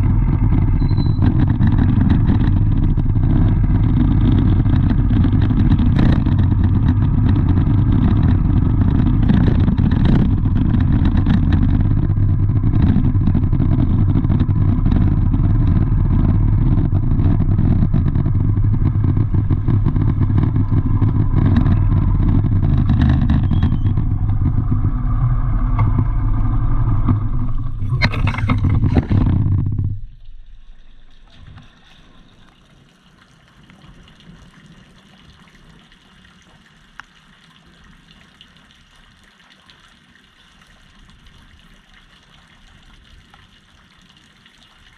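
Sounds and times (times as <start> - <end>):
vehicle engine droning: 0.0 - 33.0.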